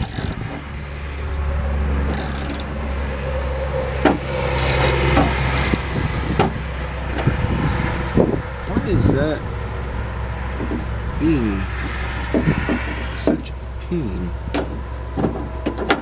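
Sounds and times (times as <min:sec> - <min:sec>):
ratchet wrench clicking: 0:00.0 - 0:00.4, 0:02.1 - 0:02.7, 0:04.6 - 0:05.8
low engine hum: 0:00.0 - 0:16.0.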